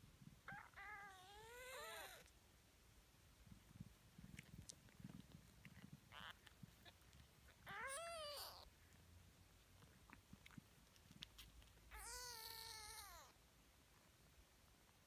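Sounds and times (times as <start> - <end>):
kittens mewing: 0.5 - 2.3, 6.1 - 8.7, 11.9 - 13.4.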